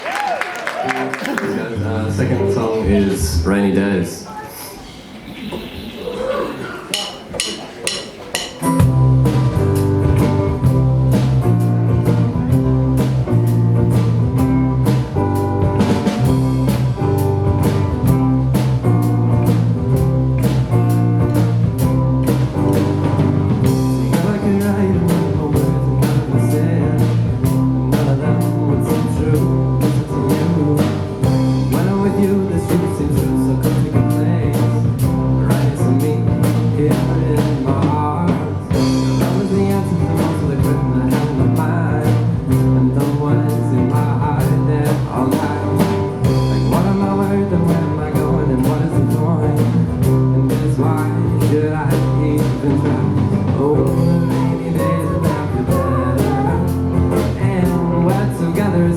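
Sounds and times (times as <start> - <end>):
guitar: 0.0 - 4.8, 7.0 - 58.9
drums steady beat: 6.2 - 58.9
person singing: 23.7 - 58.9.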